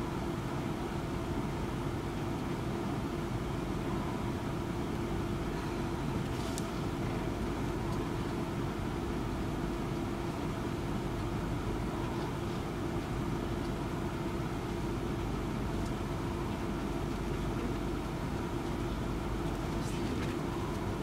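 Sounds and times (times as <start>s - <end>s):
train carriage rumble: 0.0s - 21.0s.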